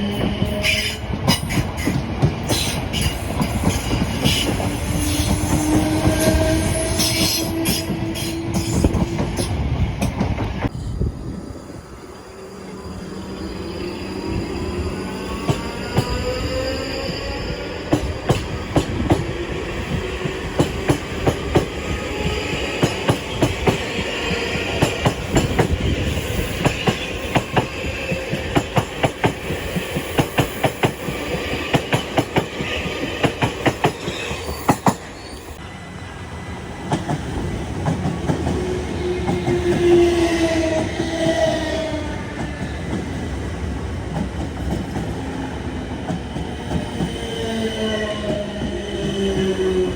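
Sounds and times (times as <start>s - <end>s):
train wheels clicking over rail joints: 0.0s - 10.7s, 17.8s - 35.1s
train squealing: 0.0s - 43.2s.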